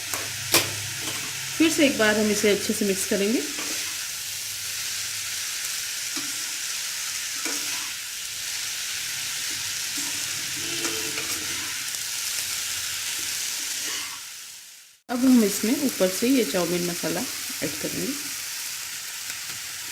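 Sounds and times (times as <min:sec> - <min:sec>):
noodles sizzling in oil: 0:00.0 - 0:19.9.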